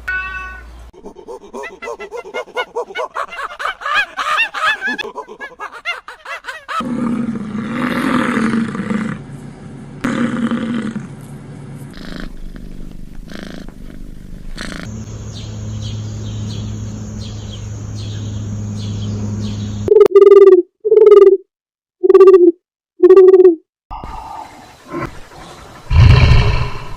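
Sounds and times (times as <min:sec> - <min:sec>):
tiger roaring: 0:06.8 - 0:09.3, 0:10.0 - 0:11.1, 0:25.8 - 0:26.9.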